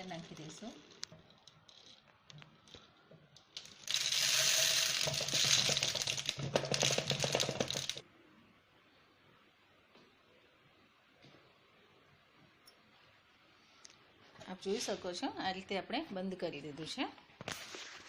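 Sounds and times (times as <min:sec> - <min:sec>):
grains poured into container: 0:03.6 - 0:08.0.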